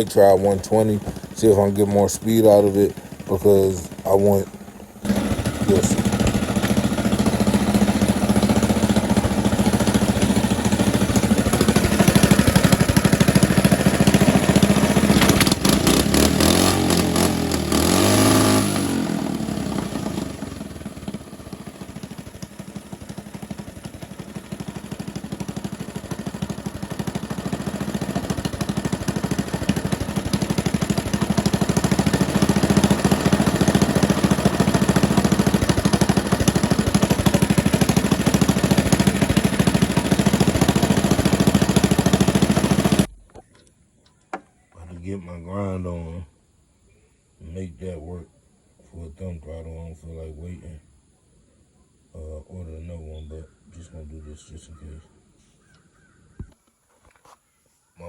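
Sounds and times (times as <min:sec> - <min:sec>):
mini bike engine revving: 0:00.0 - 0:43.1.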